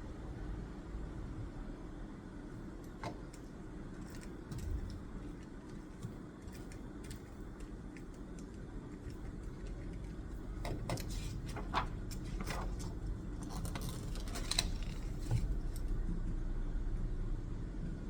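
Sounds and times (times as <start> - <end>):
paper rustling and pen scratching: 4.0 - 15.9.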